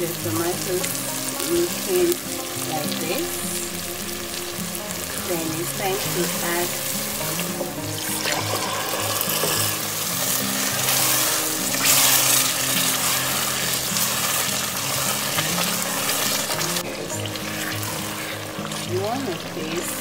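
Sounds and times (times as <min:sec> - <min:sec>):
background music: 0:00.0 - 0:20.0
stew sizzling in a pot: 0:00.0 - 0:20.0
wooden spoon stirring: 0:05.1 - 0:19.9.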